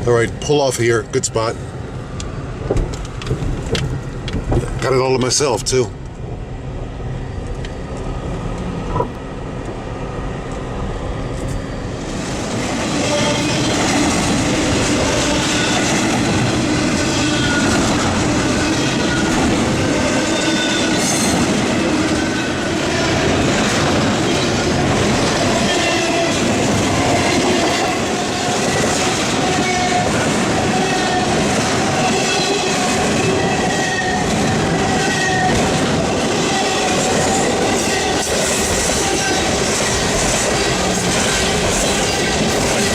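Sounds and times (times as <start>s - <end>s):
train wheels clattering over rails: 2.6s - 5.4s, 12.2s - 42.9s.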